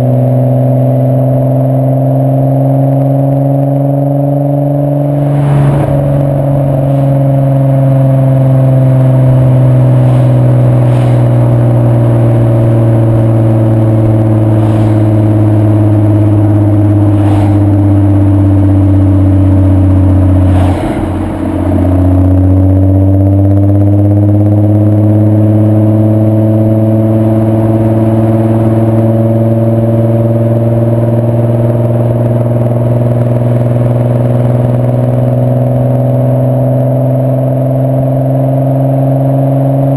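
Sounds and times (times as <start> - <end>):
car engine and exhaust running: 0.0 - 39.9.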